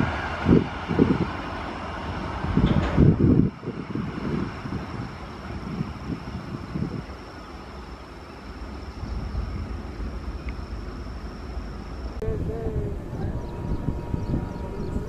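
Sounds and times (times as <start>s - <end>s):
train rumbling past: 0.0s - 15.0s
faint voice: 12.2s - 15.0s.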